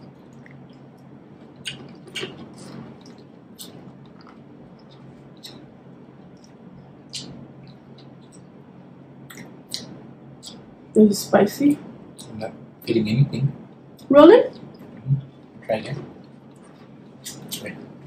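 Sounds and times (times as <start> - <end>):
faint low hum: 0.0 - 18.0
wet chewing and lip smacks: 0.1 - 5.6.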